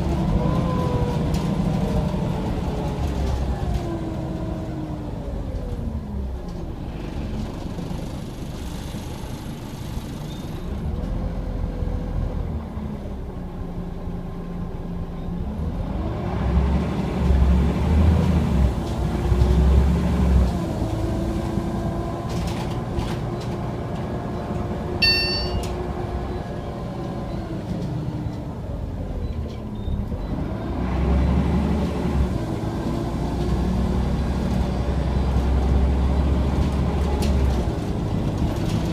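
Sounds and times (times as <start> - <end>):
bus diesel engine running: 0.0 - 38.9
road rumble: 0.0 - 38.9
short high beep: 25.0 - 25.8.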